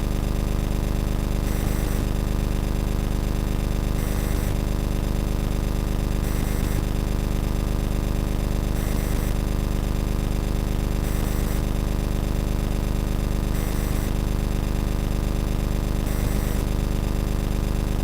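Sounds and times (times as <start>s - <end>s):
loud buzzing hum: 1.4s - 2.1s, 4.0s - 4.6s, 6.2s - 7.0s, 8.8s - 9.5s, 11.0s - 11.8s, 13.5s - 14.2s, 16.0s - 16.8s.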